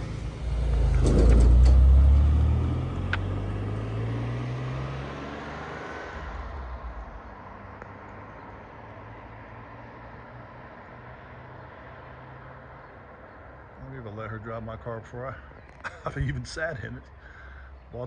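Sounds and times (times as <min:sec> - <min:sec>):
vehicle engine pulling away: 0:00.0 - 0:14.0.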